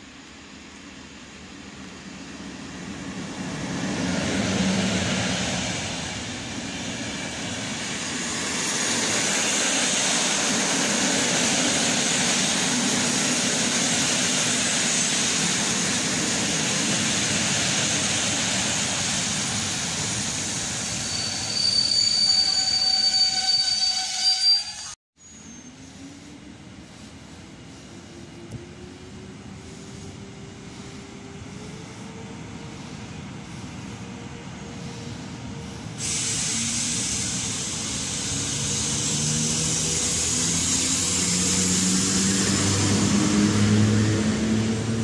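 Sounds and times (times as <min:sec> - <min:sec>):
electric locomotive passing: 0:00.0 - 0:45.0
high squeal: 0:18.6 - 0:26.4.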